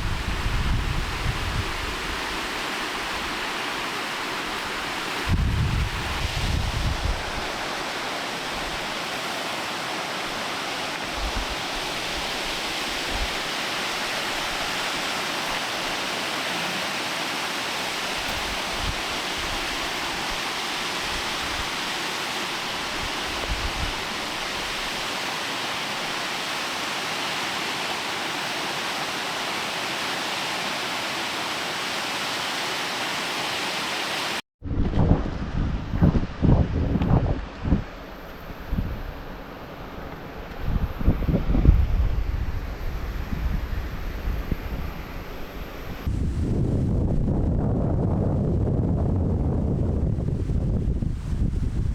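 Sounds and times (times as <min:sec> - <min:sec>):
wind bumps on microphone: 0:00.0 - 0:03.4, 0:05.2 - 0:07.8, 0:11.1 - 0:13.5, 0:22.8 - 0:24.8, 0:34.6 - 0:51.9
waterfall rushing: 0:00.0 - 0:34.4.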